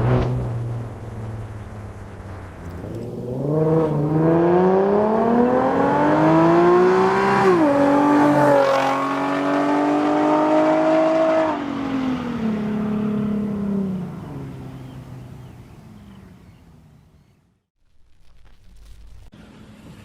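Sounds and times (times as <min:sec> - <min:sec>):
car engine accelerating hard: 0:02.2 - 0:16.3.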